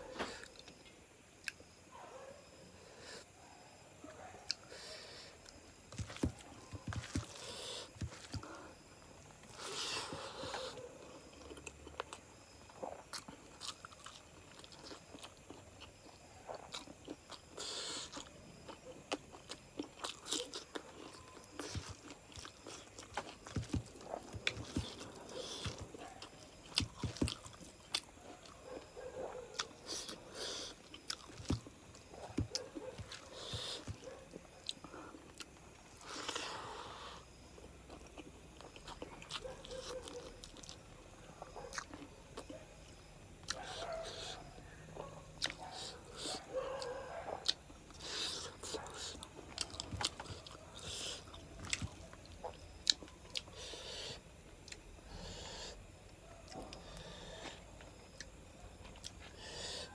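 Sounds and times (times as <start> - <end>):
person chewing food: 5.4 - 59.9.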